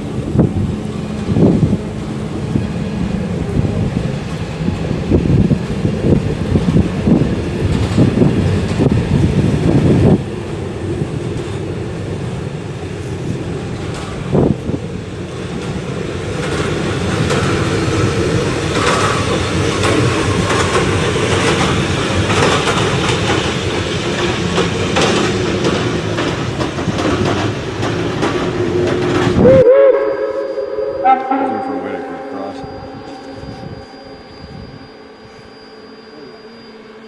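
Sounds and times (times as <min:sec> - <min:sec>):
train cars rumbling on track: 0:00.0 - 0:36.4
short wavering tone: 0:29.4 - 0:37.0.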